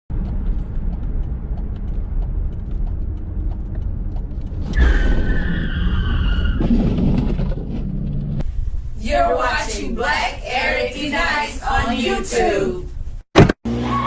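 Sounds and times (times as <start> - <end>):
car engine rumbling: 0.1 - 14.0
faint regular ticking: 0.2 - 4.5
high squealing tone: 4.6 - 6.7.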